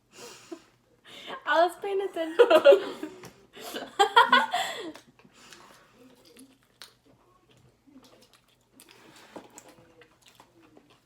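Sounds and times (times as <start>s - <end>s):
chewing and eating: 4.9s - 11.0s.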